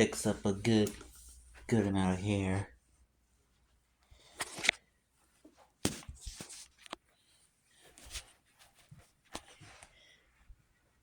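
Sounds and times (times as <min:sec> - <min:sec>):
rustling: 0:03.0 - 0:11.0.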